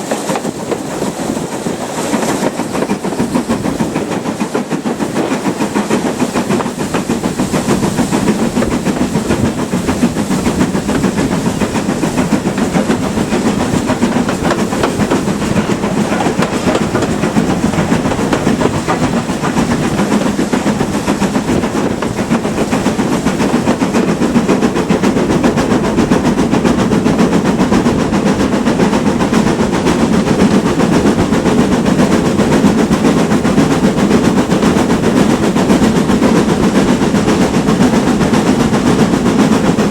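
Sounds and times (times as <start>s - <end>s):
rail noise: 0.0s - 39.9s
steam hissing: 0.0s - 39.9s
steam locomotive exhaust beats: 0.0s - 39.9s.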